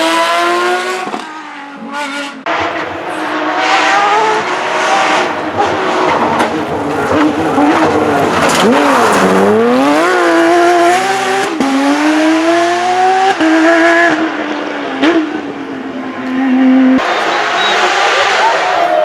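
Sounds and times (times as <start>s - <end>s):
racing car engine revving: 0.0s - 19.0s.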